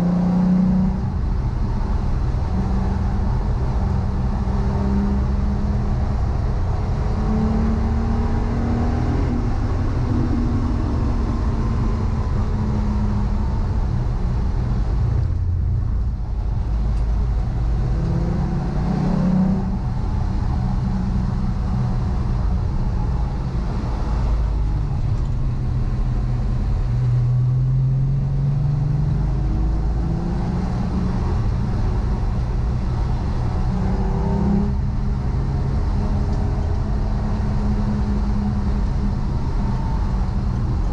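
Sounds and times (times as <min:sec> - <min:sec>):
car engine revving through gears: 0:00.0 - 0:15.5, 0:16.4 - 0:40.9.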